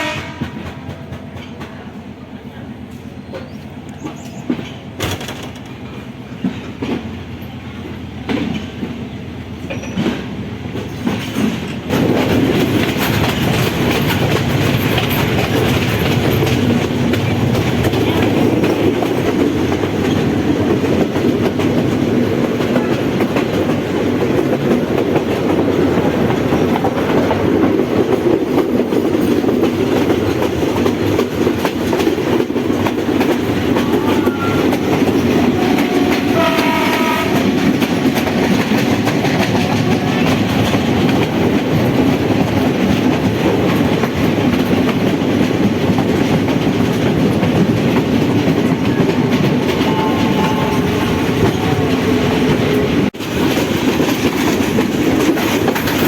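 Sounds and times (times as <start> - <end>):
train horn: 0.0 - 0.8, 33.6 - 37.9, 39.5 - 40.5, 49.6 - 53.1
train wheels clacking on rails: 0.0 - 56.0.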